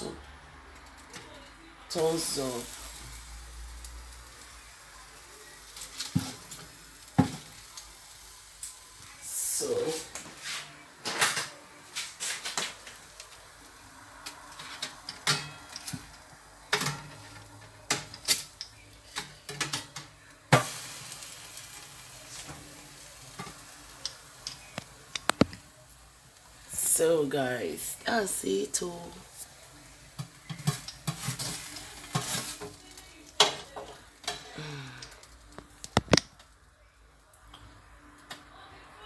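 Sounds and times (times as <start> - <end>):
food sizzling in a pan: 1.9 - 11.2, 11.8 - 37.8
utensil scraping a pan: 30.2 - 32.8.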